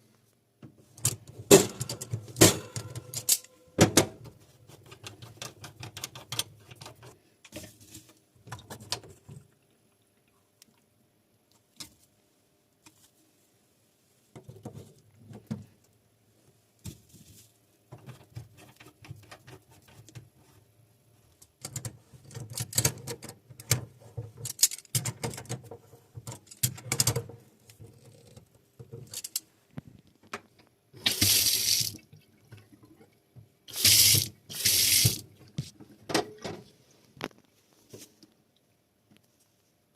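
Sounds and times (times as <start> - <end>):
tap water running: 31.0 - 32.6, 33.7 - 35.3.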